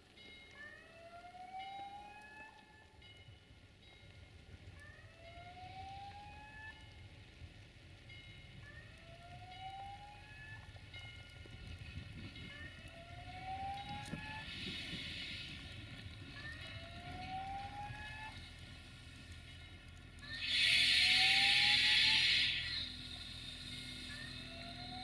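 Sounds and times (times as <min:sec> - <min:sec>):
warning siren wailing: 0:00.5 - 0:03.0, 0:04.8 - 0:07.0, 0:08.6 - 0:11.1, 0:12.4 - 0:15.2, 0:16.0 - 0:18.7, 0:20.2 - 0:25.0
diesel railcar rumble: 0:01.3 - 0:25.0
loud hiss: 0:20.3 - 0:25.0.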